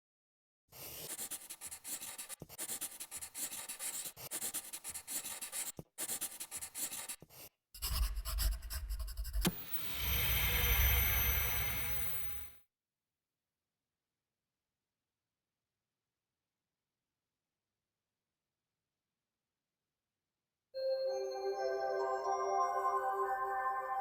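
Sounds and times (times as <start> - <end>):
drone with high whine: 9.5 - 12.5.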